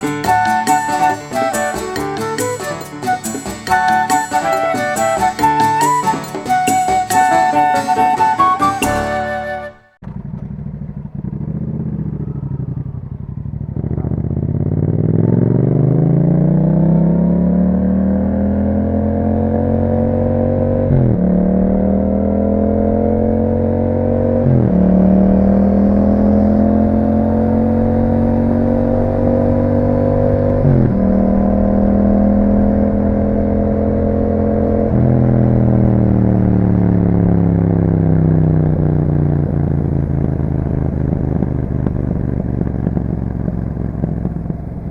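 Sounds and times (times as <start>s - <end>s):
motorcycle accelerating through gears: 10.0s - 44.9s.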